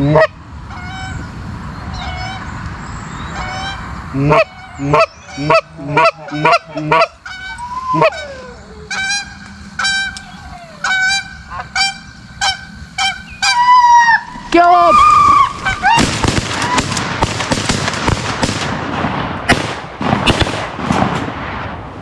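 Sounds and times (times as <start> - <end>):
goose honking and clucking: 0.0 - 1.3, 1.9 - 2.5, 3.3 - 16.8.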